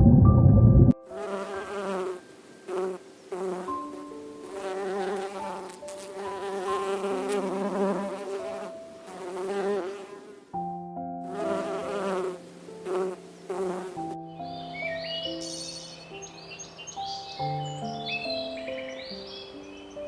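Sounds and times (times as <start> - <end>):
faint held background tones: 1.0 - 9.4
flying insect buzzing: 1.1 - 10.5, 11.3 - 14.2.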